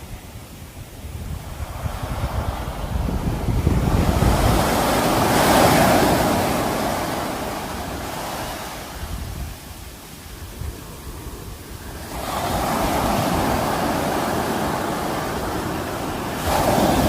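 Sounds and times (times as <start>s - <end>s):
sea waves crashing on shore: 0.0s - 17.0s
wind rumbling on microphone: 0.0s - 17.0s.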